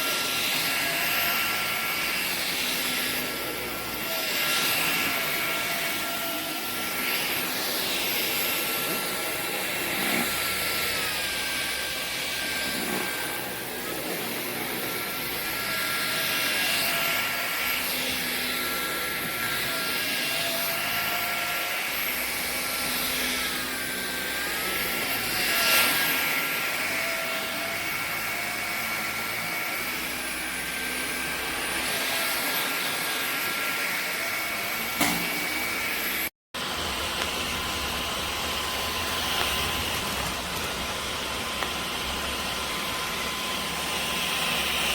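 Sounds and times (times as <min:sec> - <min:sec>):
cordless vacuum cleaner running: 0:00.0 - 0:44.9.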